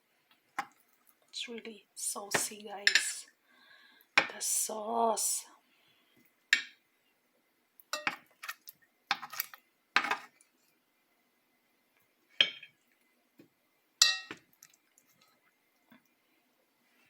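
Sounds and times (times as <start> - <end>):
metal utensil clinking on pan: 7.9 - 8.2, 14.0 - 14.4.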